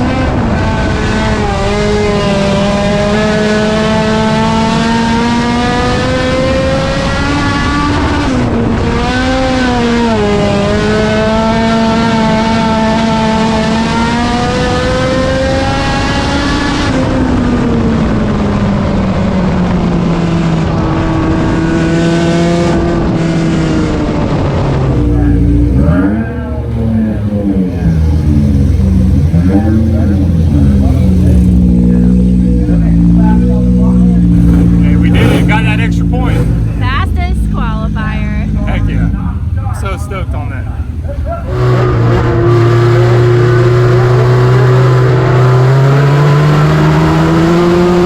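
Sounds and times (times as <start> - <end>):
race car engine at high revs: 0.0 - 48.0.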